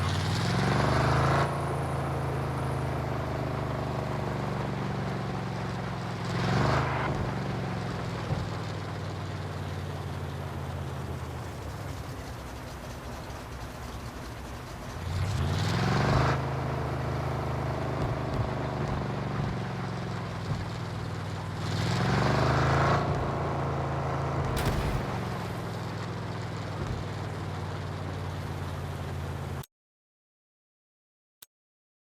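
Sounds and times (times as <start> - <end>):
truck engine revving: 0.0 - 11.3, 15.0 - 29.0.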